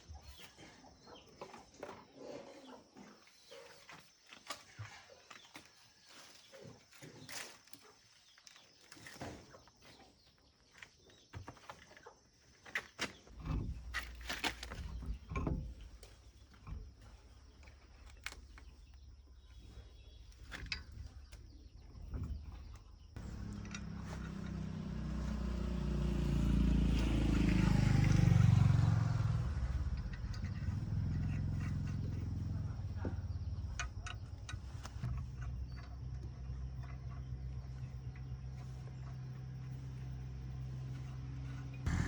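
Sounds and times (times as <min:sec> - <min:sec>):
engine starting and droning: 0:13.3 - 0:42.0.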